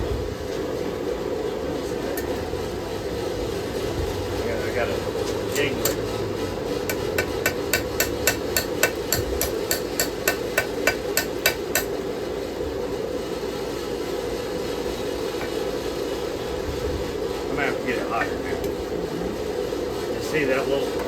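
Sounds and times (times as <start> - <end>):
hammer ringing on anvil: 6.9 - 11.9.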